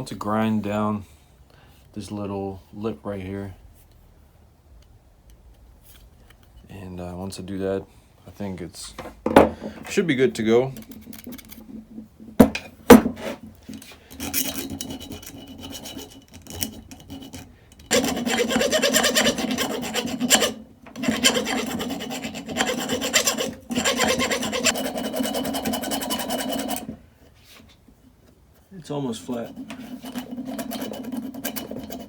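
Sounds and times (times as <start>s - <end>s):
light scraping: 8.3s - 32.0s
grinder grinding metal: 17.9s - 26.9s.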